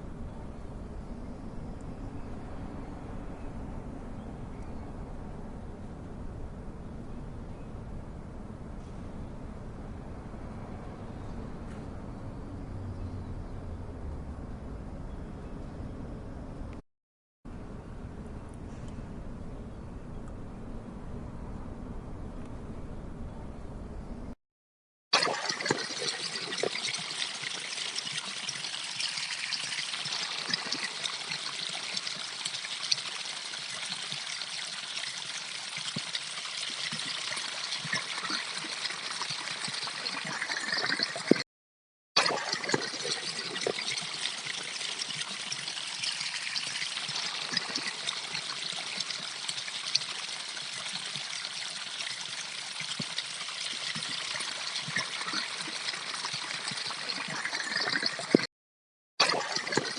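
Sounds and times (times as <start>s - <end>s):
stream babbling over stones: 42.2s - 58.5s.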